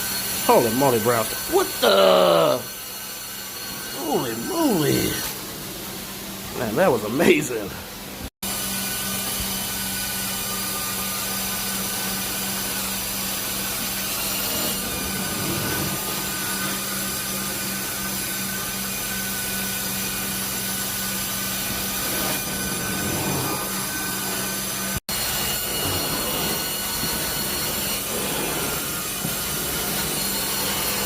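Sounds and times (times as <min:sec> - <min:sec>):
vacuum cleaner motor hum: 0:09.3 - 0:31.0.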